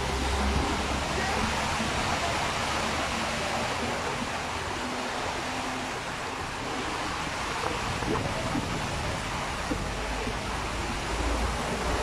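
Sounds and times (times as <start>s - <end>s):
heavy rain: 0.0s - 12.0s
running water: 0.0s - 12.0s.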